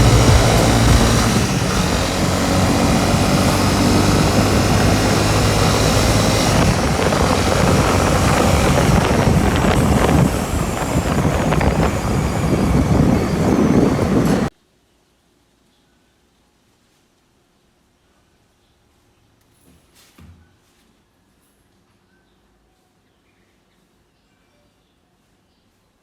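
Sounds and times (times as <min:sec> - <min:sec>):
motorcycle engine drone: 0:00.0 - 0:14.5
rushing wind noise: 0:00.0 - 0:14.5.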